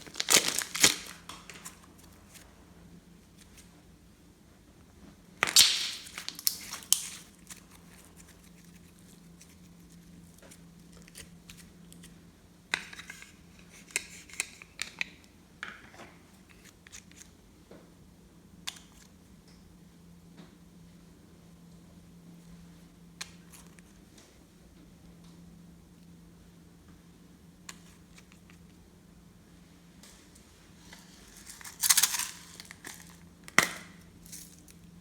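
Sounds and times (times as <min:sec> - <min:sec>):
slime crackling squelches: 0:00.0 - 0:01.8, 0:05.4 - 0:08.9.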